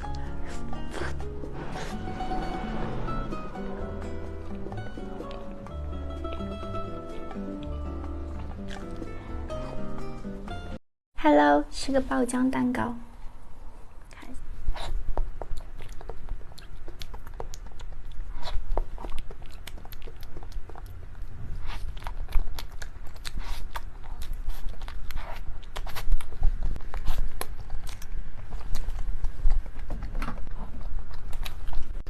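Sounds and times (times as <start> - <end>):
chewing cake with wet smacks: 7.3 - 9.8, 14.7 - 32.0.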